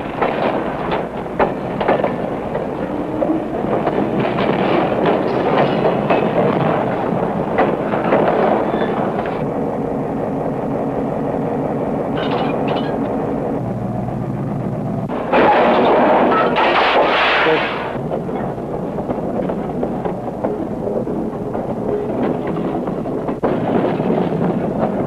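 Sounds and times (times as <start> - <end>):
freight cars rumbling: 0.0 - 25.0
train wheels clicking over rail joints: 0.0 - 25.0
steel couplers crashing bang: 15.1 - 18.0.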